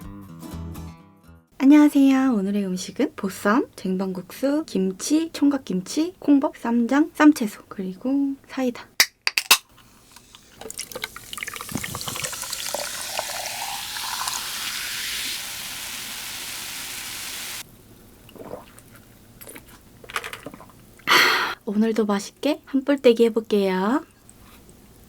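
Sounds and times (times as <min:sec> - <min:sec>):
fizzing hiss: 0:10.0 - 0:17.6
soda pouring into glass: 0:10.0 - 0:17.6.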